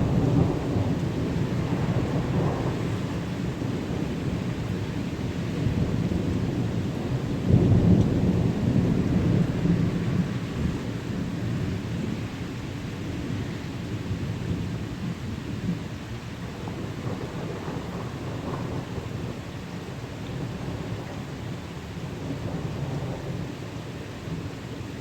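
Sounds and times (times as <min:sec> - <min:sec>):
rolling thunder: 0:00.0 - 0:12.2, 0:16.4 - 0:23.5
steady rain: 0:00.0 - 0:25.0.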